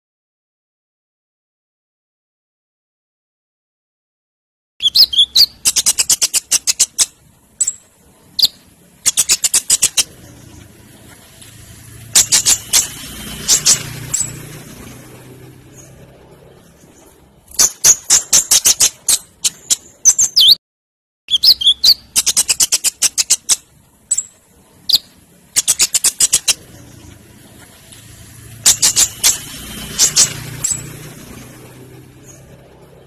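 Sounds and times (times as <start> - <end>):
bird singing high sharp notes: 4.8 - 7.8, 12.1 - 14.9, 17.5 - 20.6, 21.3 - 27.0, 28.6 - 31.3.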